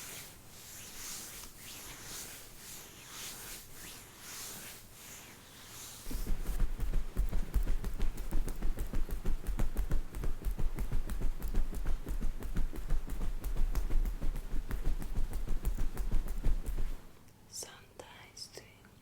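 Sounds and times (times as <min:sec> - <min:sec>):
rapid tapping with deep thumps: 0:06.1 - 0:17.1.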